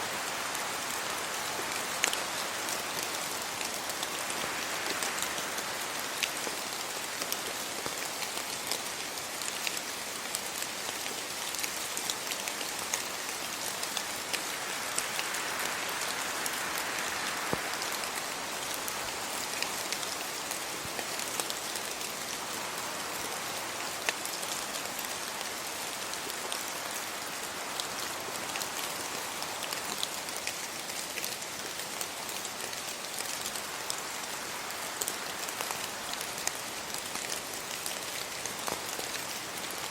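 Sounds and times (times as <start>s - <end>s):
rain on leaves and road: 0.0s - 39.9s.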